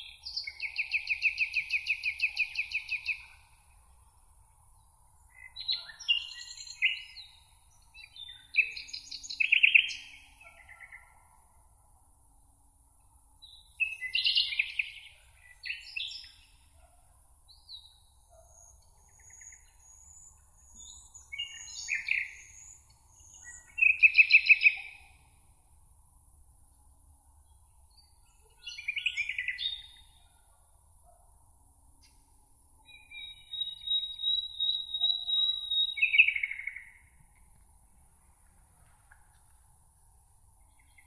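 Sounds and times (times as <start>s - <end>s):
songbirds singing with trills: 0.0s - 3.6s, 4.8s - 11.2s, 13.4s - 16.9s, 17.5s - 25.3s, 27.4s - 30.5s, 32.8s - 37.5s
faint steady hiss: 35.9s - 41.0s.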